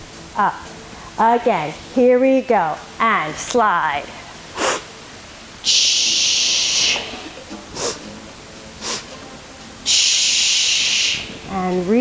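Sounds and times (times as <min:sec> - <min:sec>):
hissing exhale through teeth: 0:04.6 - 0:04.9, 0:05.7 - 0:07.1, 0:07.8 - 0:08.1, 0:08.8 - 0:09.2.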